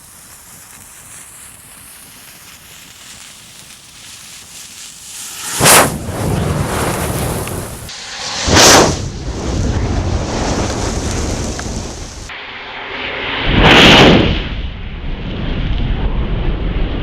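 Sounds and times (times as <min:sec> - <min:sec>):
burning matches rushing: 0:00.0 - 0:07.9, 0:10.2 - 0:12.3
whooshing flare-ups: 0:00.0 - 0:12.3.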